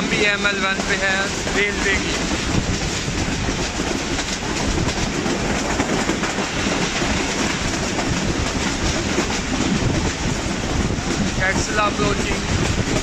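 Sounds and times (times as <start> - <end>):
train rumble: 0.0 - 13.0
wheels clattering over rails: 0.0 - 13.0.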